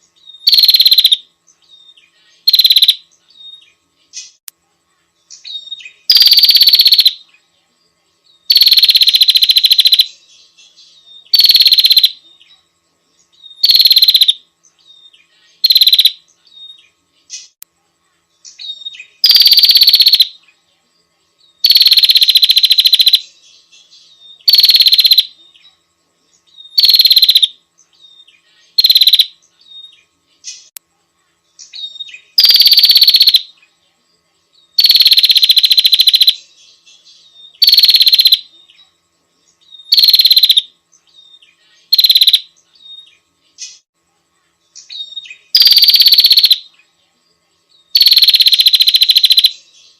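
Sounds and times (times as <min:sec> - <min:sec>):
bird buzzy rattling trill: 0:00.0 - 0:03.6, 0:05.4 - 0:07.2, 0:08.4 - 0:10.2, 0:11.2 - 0:12.2, 0:13.4 - 0:17.6, 0:18.5 - 0:20.4, 0:21.6 - 0:23.4, 0:24.3 - 0:25.4, 0:26.5 - 0:29.9, 0:31.7 - 0:33.5, 0:34.7 - 0:36.5, 0:37.5 - 0:38.5, 0:39.7 - 0:40.7, 0:41.8 - 0:42.6, 0:44.9 - 0:46.7, 0:47.9 - 0:49.6.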